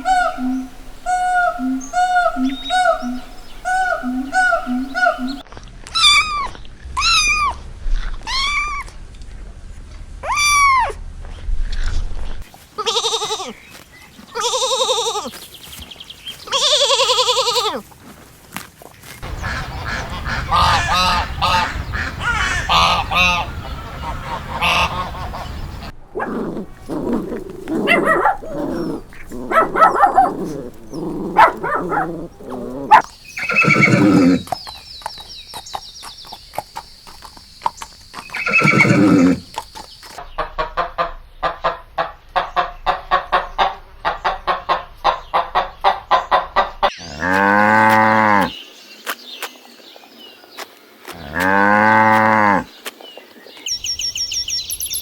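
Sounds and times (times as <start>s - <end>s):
farm animals calling: 0.0s - 5.4s, 19.2s - 40.2s, 53.7s - 55.0s.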